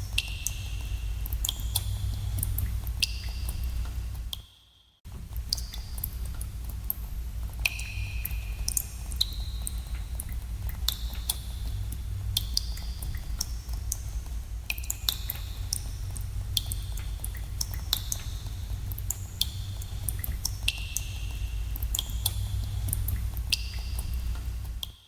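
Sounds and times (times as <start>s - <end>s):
low rumble: 15.5s - 24.8s.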